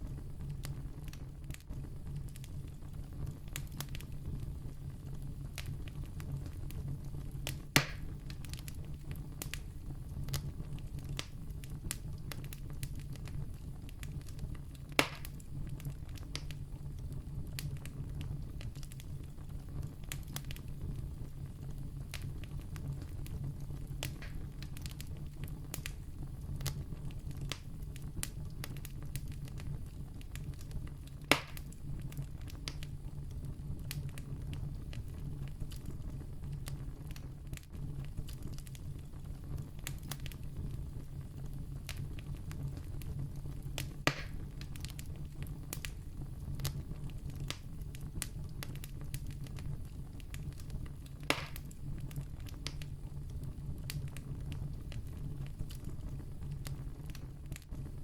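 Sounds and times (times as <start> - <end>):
campfire crackling: 0.0 - 58.0
loud fire pops: 0.0 - 58.0.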